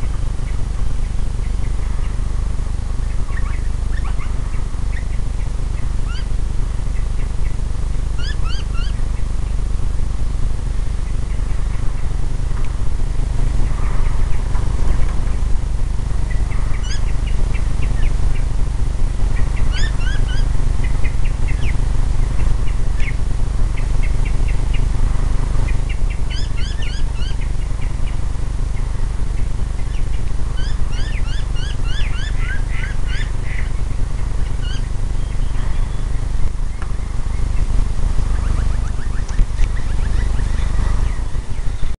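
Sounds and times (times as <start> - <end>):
loud low rumble: 0.0 - 42.0
birds calling high notes: 3.0 - 9.6, 16.2 - 18.5, 19.3 - 24.9, 25.6 - 28.2, 28.8 - 41.9.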